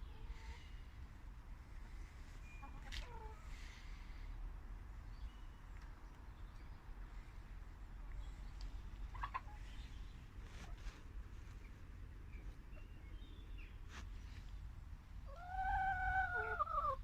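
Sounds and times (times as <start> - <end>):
chicken chirp: 9.0 - 10.9, 15.2 - 17.0
long drawn-out chicken call: 15.3 - 17.0.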